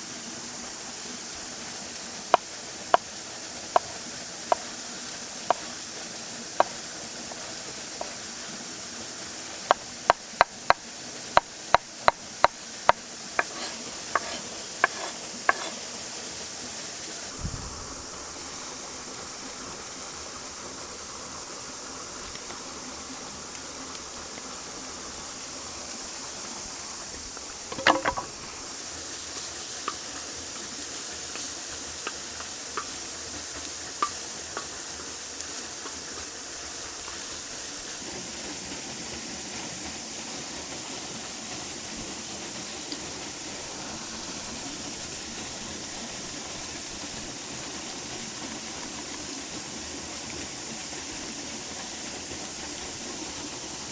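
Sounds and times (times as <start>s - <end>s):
steady hiss: 0.0s - 53.9s
utensil knocking: 3.8s - 4.7s, 9.7s - 15.8s, 27.4s - 28.7s
metallic clatter: 27.7s - 28.4s.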